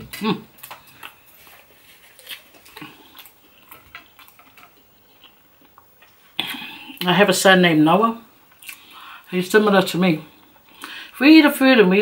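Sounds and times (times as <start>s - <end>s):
wet mouth clicks and smacks chewing: 8.5s - 8.9s.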